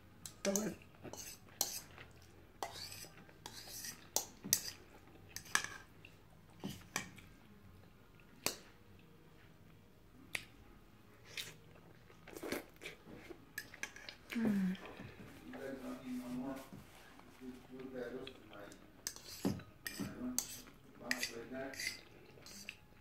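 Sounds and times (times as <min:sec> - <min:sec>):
person chewing noodles: 0:11.2 - 0:14.4.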